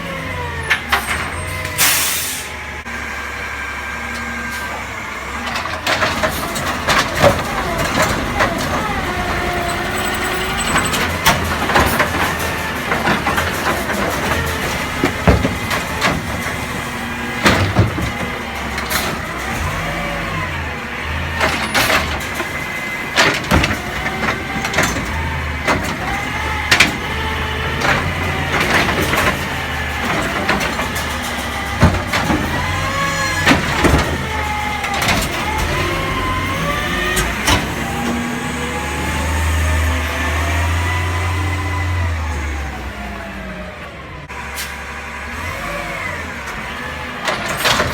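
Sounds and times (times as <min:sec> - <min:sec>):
truck engine revving: 0:00.0 - 0:47.9
metallic bangs and clanks: 0:05.5 - 0:38.2.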